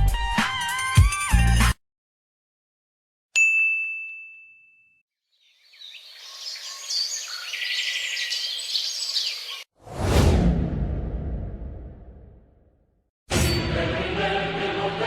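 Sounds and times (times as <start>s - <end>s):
high bell ding: 3.4s - 5.0s
birds chirping: 5.3s - 9.7s.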